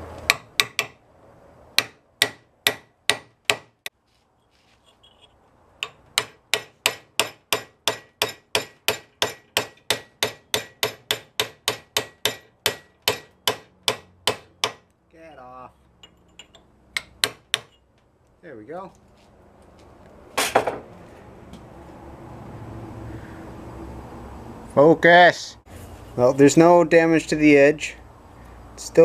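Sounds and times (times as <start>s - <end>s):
hammer striking steel chisel: 0.3s - 1.0s, 1.8s - 3.8s, 5.8s - 14.9s, 16.0s - 17.8s.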